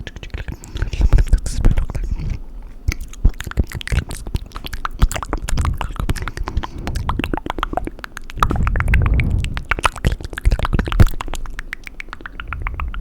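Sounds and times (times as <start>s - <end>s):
wet mouth clicks and smacks: 2.9s - 13.0s
low wet churning: 3.6s - 13.0s.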